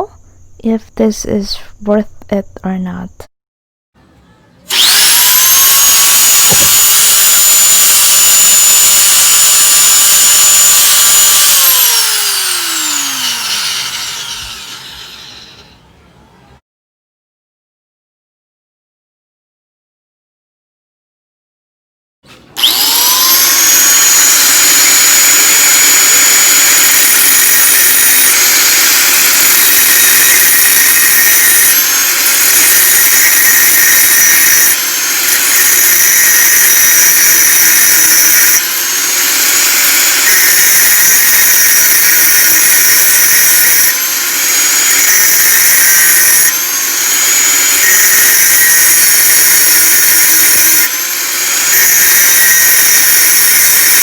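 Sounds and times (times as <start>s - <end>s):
angle grinder whining: 4.7s - 15.8s, 22.5s - 54.0s.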